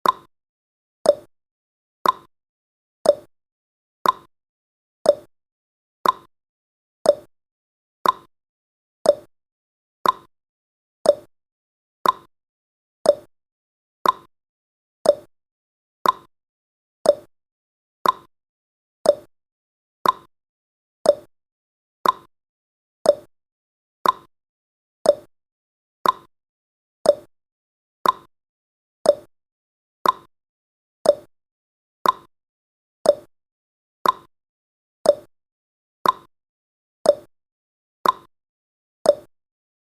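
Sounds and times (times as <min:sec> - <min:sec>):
clock ticking: 0:02.0 - 0:02.3, 0:04.0 - 0:04.3, 0:06.0 - 0:06.3, 0:08.0 - 0:08.3, 0:10.0 - 0:10.3, 0:12.0 - 0:12.3, 0:14.0 - 0:14.3, 0:15.1 - 0:15.3, 0:16.0 - 0:16.3, 0:18.0 - 0:18.3, 0:20.0 - 0:20.3, 0:21.1 - 0:21.3, 0:22.0 - 0:22.3, 0:24.0 - 0:24.3, 0:26.0 - 0:26.3, 0:28.0 - 0:28.3, 0:29.1 - 0:29.3, 0:30.0 - 0:30.3, 0:31.1 - 0:31.3, 0:32.0 - 0:32.3, 0:33.1 - 0:33.3, 0:34.0 - 0:34.3, 0:35.1 - 0:35.3, 0:36.0 - 0:36.3, 0:38.0 - 0:38.3, 0:39.1 - 0:39.3.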